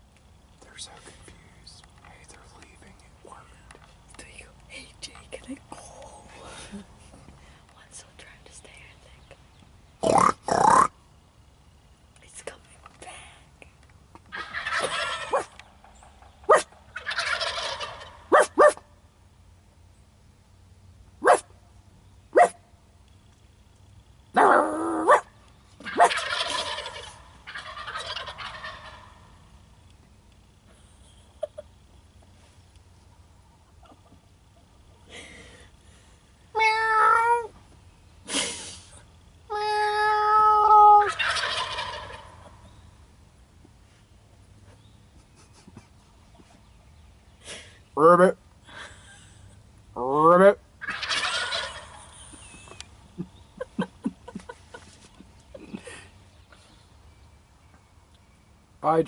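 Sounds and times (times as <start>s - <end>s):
short sharp turkey calls: 14.3s - 18.8s, 25.8s - 29.2s, 41.0s - 42.7s, 50.8s - 52.9s
turkey gobbling: 14.3s - 18.8s, 25.8s - 29.4s, 40.8s - 42.7s, 50.1s - 53.8s.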